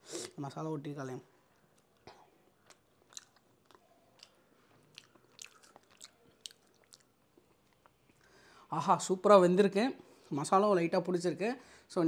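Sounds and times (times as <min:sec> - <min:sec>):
person chewing crunchy food: 0:01.8 - 0:08.2.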